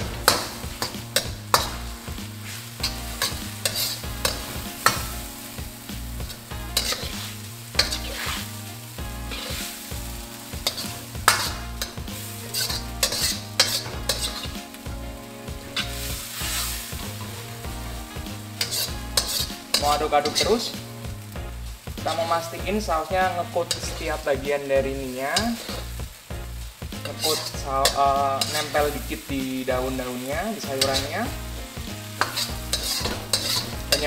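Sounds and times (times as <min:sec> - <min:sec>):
metal ladle clanking on wok: 0:00.0 - 0:01.8, 0:07.8 - 0:08.3, 0:10.6 - 0:14.5, 0:27.0 - 0:28.8, 0:32.2 - 0:34.0
steady sizzle: 0:00.0 - 0:34.0.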